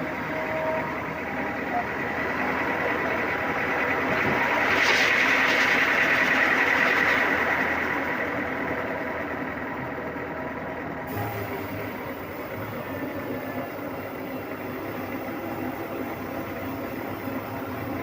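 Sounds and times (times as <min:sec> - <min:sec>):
sawmill machinery running: 0:00.0 - 0:18.0.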